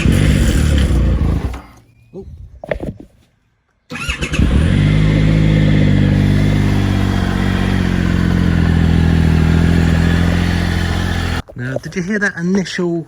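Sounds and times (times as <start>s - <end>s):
engine rattle: 0.0s - 1.8s, 3.9s - 11.5s
motorcycle engine idling: 4.0s - 11.4s.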